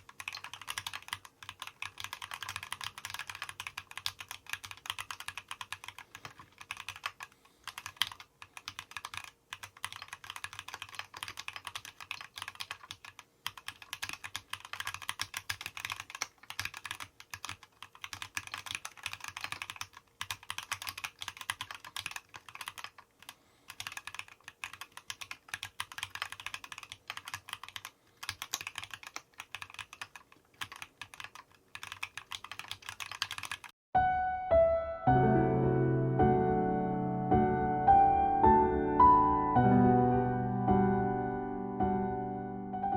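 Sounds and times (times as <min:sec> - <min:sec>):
mechanical keyboard typing: 0:00.0 - 0:33.7.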